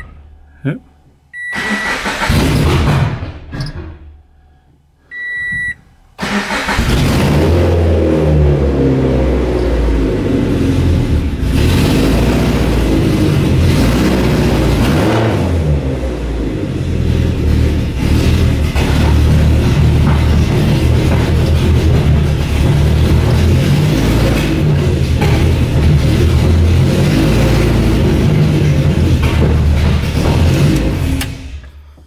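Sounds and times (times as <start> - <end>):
short electronic beep: 1.4 - 1.9, 5.1 - 5.8
car engine running rough: 6.2 - 32.0.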